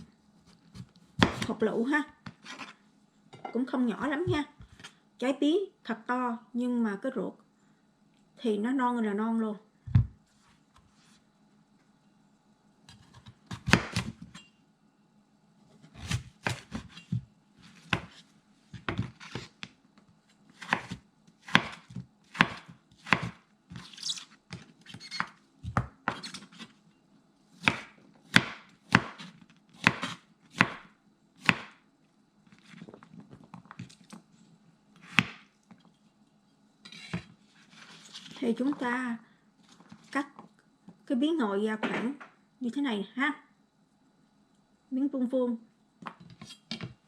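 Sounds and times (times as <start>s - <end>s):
knife chopping on cutting board: 0.7s - 1.5s, 12.9s - 14.3s, 16.0s - 17.2s, 20.6s - 23.9s, 27.6s - 31.8s, 35.0s - 35.4s.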